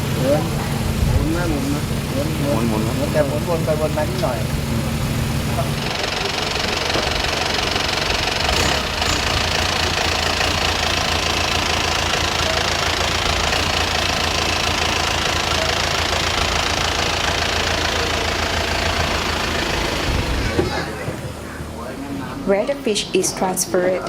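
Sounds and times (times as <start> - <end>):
engine rumbling with hiss: 0.0 - 23.5.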